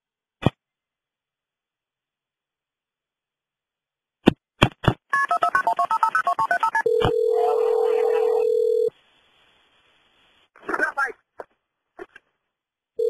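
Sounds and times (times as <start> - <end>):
steady telephone tone: 5.2 - 8.9
touch-tone dialing beeps: 5.2 - 8.9.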